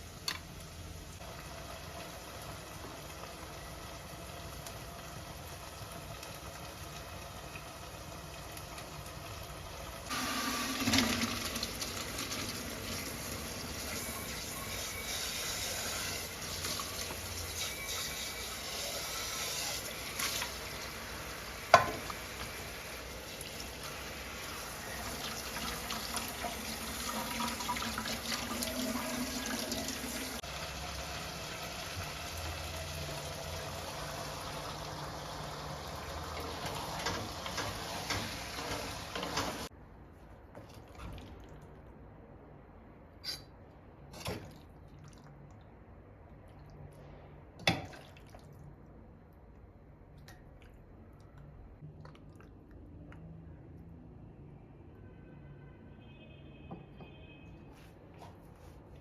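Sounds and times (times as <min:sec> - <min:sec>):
tap water running into sink: 0:10.0 - 0:14.4, 0:21.6 - 0:30.4.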